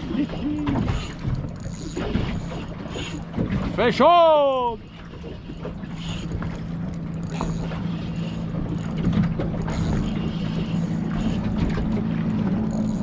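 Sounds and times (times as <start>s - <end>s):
fishing reel winding: 0.9s - 3.2s.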